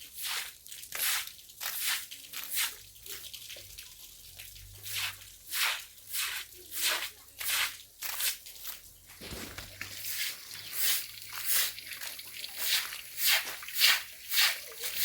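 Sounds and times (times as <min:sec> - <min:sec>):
crunching footsteps: 0:08.6 - 0:11.6.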